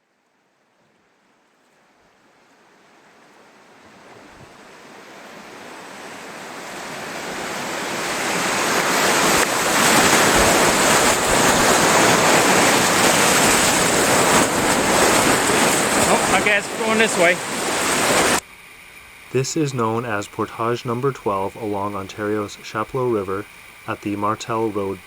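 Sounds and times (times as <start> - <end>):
river rapids rushing: 4.6 - 18.4.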